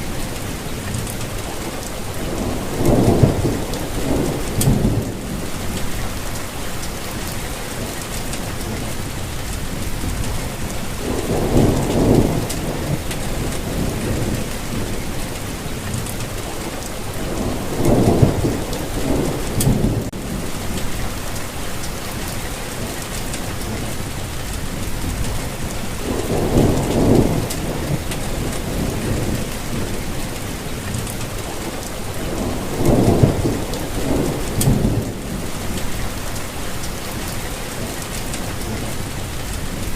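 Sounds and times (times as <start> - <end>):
thunder rumbling: 0.0 - 22.4, 23.4 - 39.9
steady rainfall: 0.0 - 39.9.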